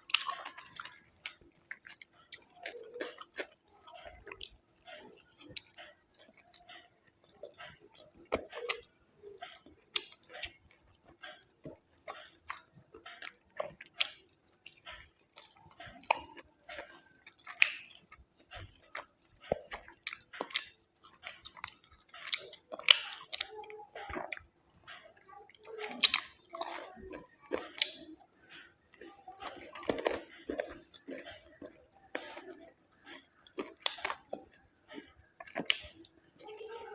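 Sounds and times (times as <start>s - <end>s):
chewing and mouth sounds: 0.0s - 36.9s.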